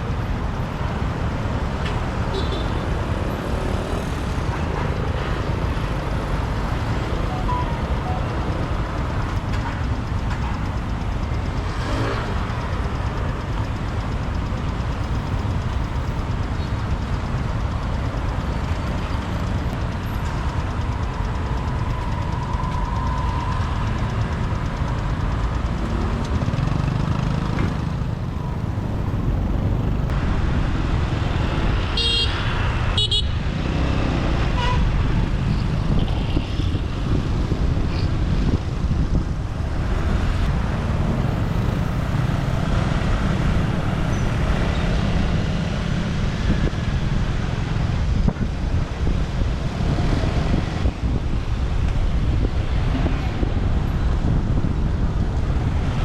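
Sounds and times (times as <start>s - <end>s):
motorbike engine and road noise: 0.0s - 56.0s
horn beeps: 2.3s - 2.9s, 5.0s - 9.2s.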